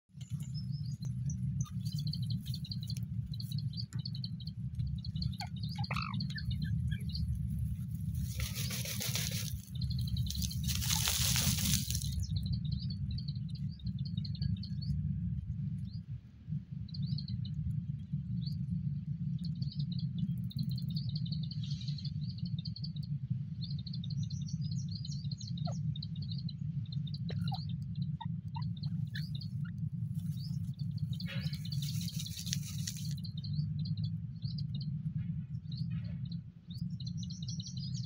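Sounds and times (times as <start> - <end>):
small birds chirping: 0.1 - 38.0
steady low rumble: 0.1 - 38.0
bird rustling in dust: 7.2 - 12.3, 30.2 - 33.2.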